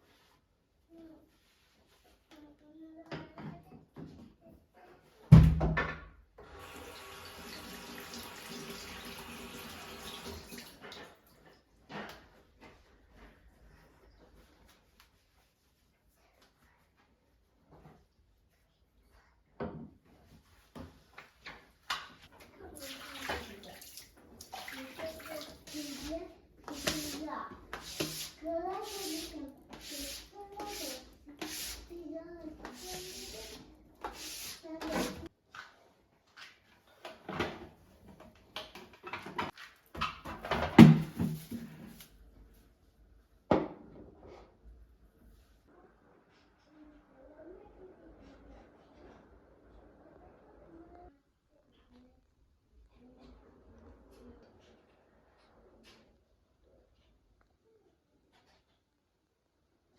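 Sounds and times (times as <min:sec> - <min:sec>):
water running from a tap: 0:06.5 - 0:10.9, 0:22.8 - 0:26.1, 0:27.8 - 0:30.2
household objects knocking and clattering: 0:37.1 - 0:41.7.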